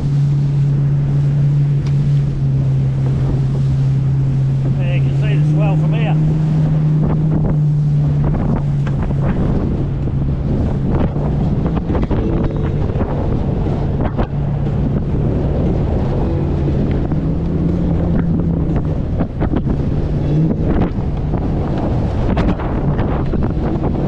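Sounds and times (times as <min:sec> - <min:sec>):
outboard motor running: 0:00.0 - 0:24.0
water slapping against hull: 0:00.0 - 0:24.0
wind buffeting microphone: 0:00.0 - 0:24.0.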